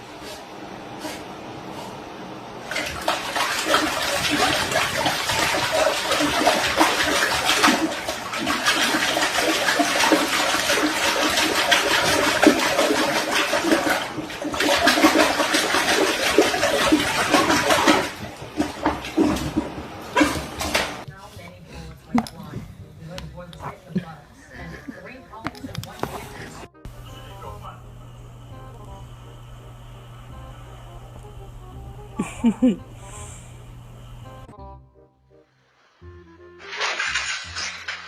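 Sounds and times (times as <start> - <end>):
rushing splashing water: 2.7 - 21.1.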